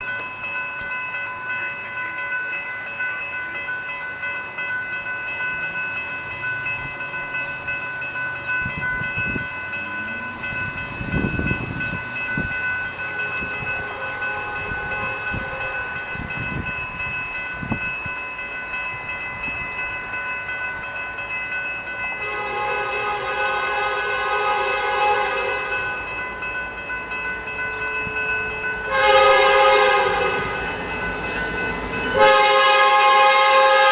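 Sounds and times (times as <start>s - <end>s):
crossing bell ringing: 0.0s - 33.9s
locomotive air horn: 13.1s - 15.6s, 22.2s - 25.8s, 28.9s - 30.6s, 32.2s - 33.9s.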